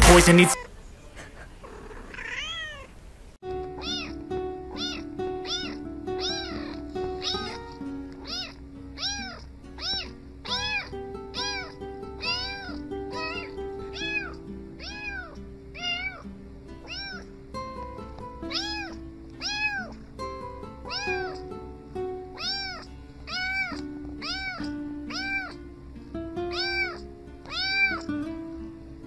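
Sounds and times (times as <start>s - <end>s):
background music: 0.0s - 0.6s, 3.4s - 29.0s
kitten meowing: 2.1s - 2.9s, 3.8s - 7.6s, 8.2s - 16.2s, 16.8s - 17.3s, 18.5s - 20.0s, 20.9s - 21.4s, 22.4s - 25.6s, 26.5s - 28.1s.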